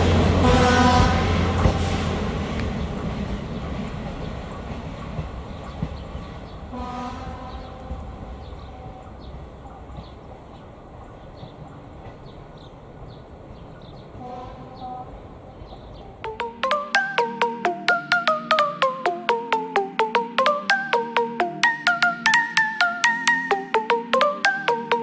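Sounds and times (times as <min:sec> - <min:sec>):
railbus engine and wheel noise: 0:00.0 - 0:16.2
train horn blast: 0:00.1 - 0:02.0, 0:06.7 - 0:09.2, 0:14.2 - 0:15.2.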